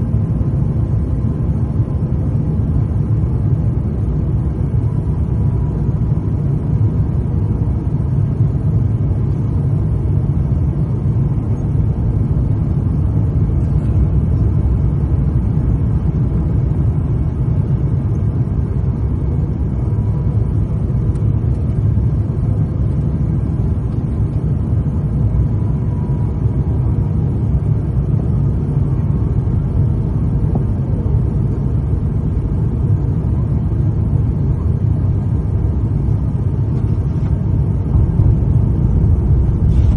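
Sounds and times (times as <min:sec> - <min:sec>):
jet engine and airflow rumble: 0:00.0 - 0:39.9.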